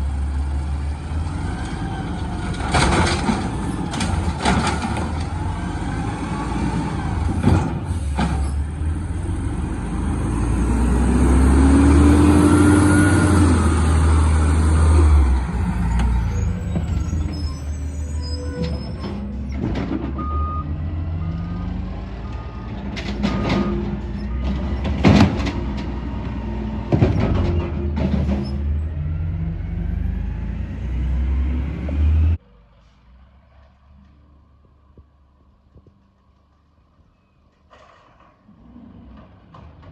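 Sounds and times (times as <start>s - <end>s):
garbage truck engine revving: 0.0s - 32.4s
sharp knocks and clanks: 22.9s - 28.7s.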